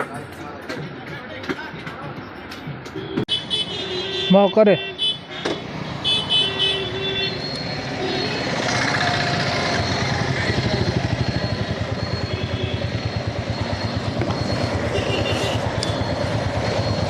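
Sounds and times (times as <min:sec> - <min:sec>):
motorcycle engine running: 0:07.8 - 0:17.0.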